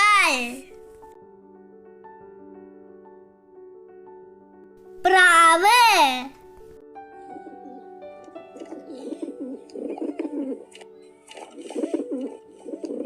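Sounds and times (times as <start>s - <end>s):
soft background music: 0.0s - 13.0s
pigeon cooing: 7.2s - 13.0s.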